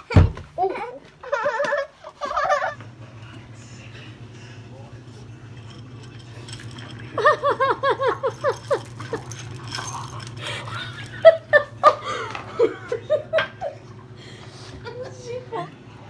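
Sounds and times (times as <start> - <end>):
person laughing: 1.2 - 2.8, 7.2 - 9.4, 10.4 - 13.9
low hum: 2.4 - 16.0.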